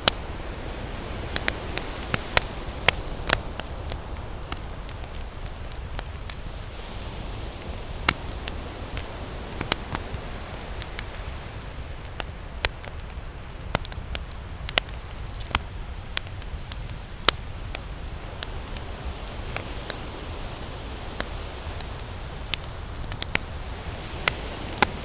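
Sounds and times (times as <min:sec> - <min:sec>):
campfire crackling and popping: 0:00.0 - 0:25.0
low rumble of surf: 0:00.0 - 0:25.0.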